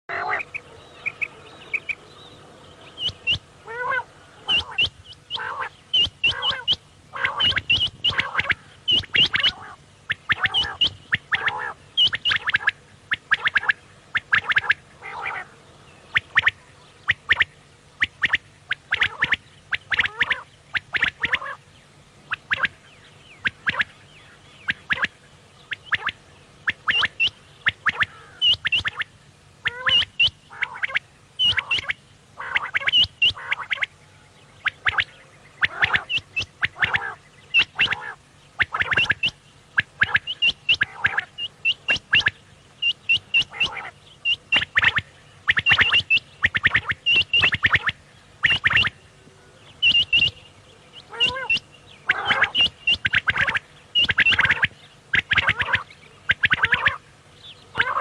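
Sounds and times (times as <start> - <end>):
quail calling: 0.1 - 58.0.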